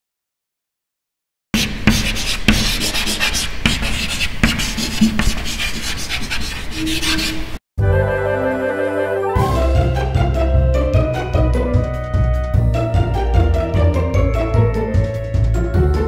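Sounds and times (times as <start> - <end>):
music track: 7.8 - 16.0.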